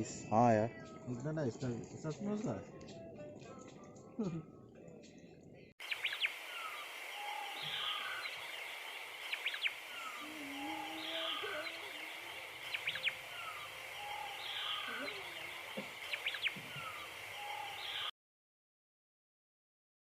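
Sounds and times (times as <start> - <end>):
birds calling and chirping: 0.0 - 18.1
steady high hiss: 5.8 - 18.1.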